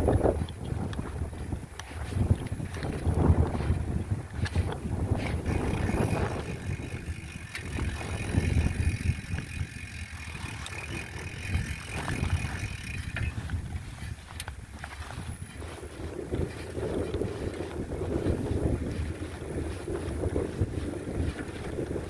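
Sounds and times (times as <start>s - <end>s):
wind buffeting microphone: 0.0s - 22.0s
small clicks: 4.4s - 15.0s.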